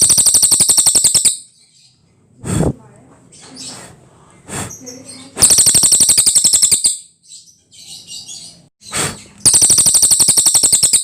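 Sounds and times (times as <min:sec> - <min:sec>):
soft bird twittering: 0:00.0 - 0:02.0, 0:04.6 - 0:11.0
songbird high-pitched trills: 0:00.0 - 0:02.0, 0:04.8 - 0:08.6, 0:09.4 - 0:11.0.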